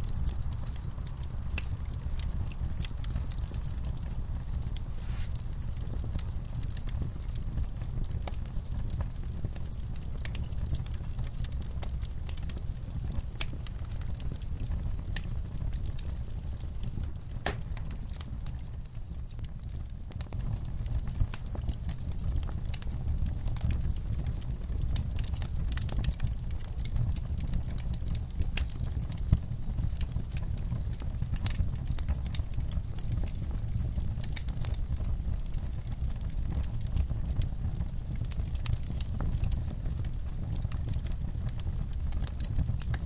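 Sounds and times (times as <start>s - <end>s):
low fire rumble: 0.0s - 43.0s
wood fire crackling: 0.0s - 43.0s
sharp pops and snaps: 17.4s - 18.0s.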